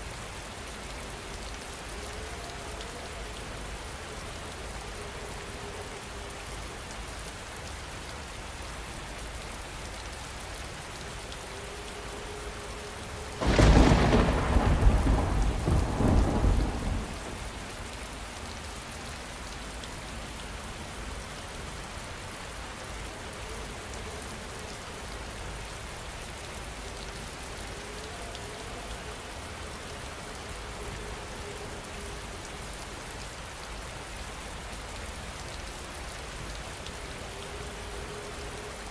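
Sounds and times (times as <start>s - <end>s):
heavy rain: 0.0s - 38.9s
thunder crack and rumble: 13.4s - 17.8s.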